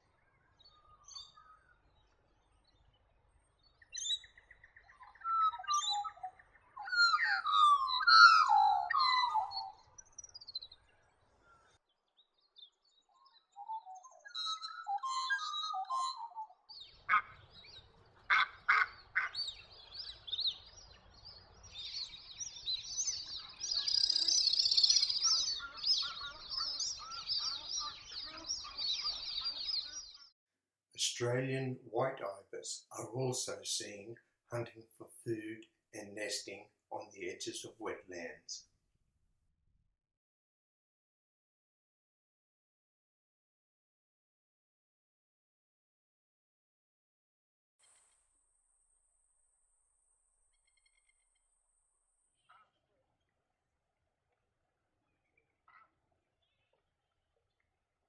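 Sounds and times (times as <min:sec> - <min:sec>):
birds chirping and calling: 0:00.6 - 0:01.9, 0:03.8 - 0:10.8, 0:13.3 - 0:30.3.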